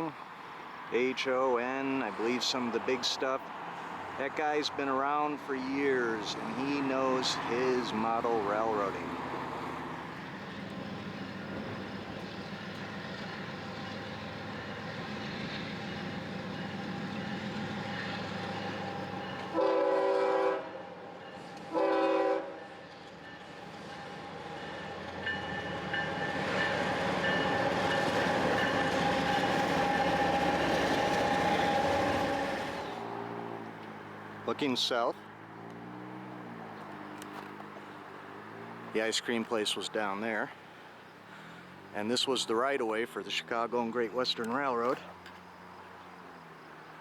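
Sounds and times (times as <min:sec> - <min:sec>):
train rumble and wheel noise: 0:00.0 - 0:47.0
locomotive air horn: 0:19.4 - 0:20.9, 0:21.6 - 0:22.7.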